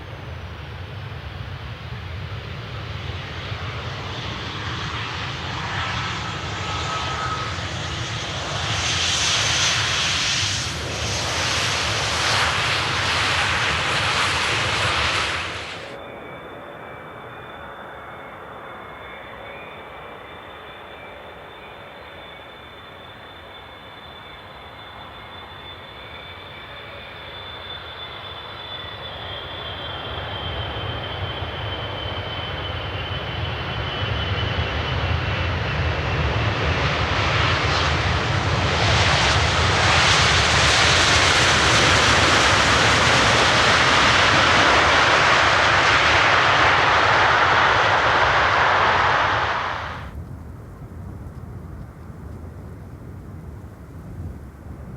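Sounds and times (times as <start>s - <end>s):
jet engines whining and roaring: 0.0s - 54.9s.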